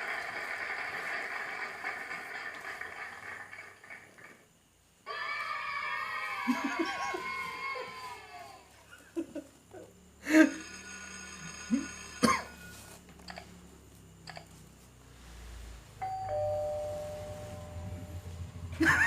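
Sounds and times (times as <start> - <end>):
two-note doorbell chime: 16.0 - 18.2.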